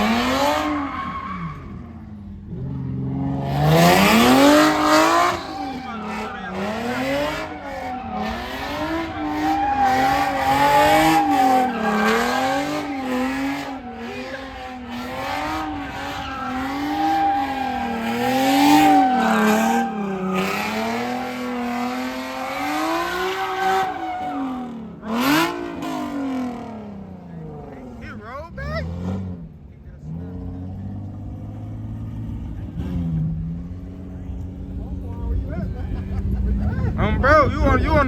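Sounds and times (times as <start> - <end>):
tire squeal: 0.0 - 26.6
car engine revving: 0.0 - 38.0.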